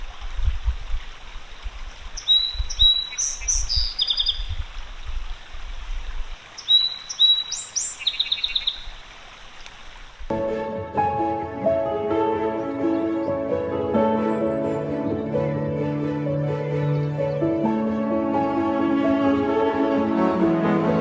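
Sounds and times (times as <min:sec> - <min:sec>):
steady outdoor hiss: 0:00.0 - 0:21.0
songbird singing with trill: 0:02.2 - 0:04.6, 0:06.6 - 0:09.0, 0:16.7 - 0:17.6
music: 0:10.3 - 0:21.0.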